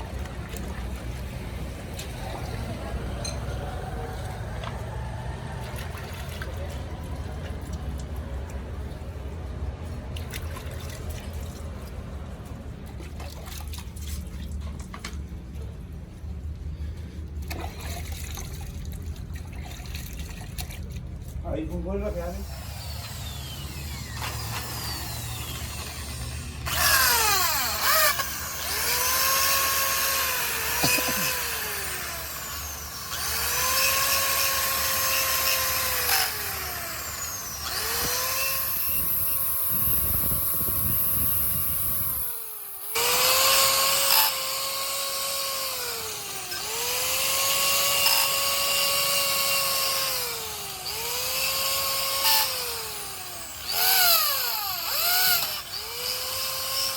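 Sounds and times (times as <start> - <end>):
power drill motor whine: 22.3 - 56.9.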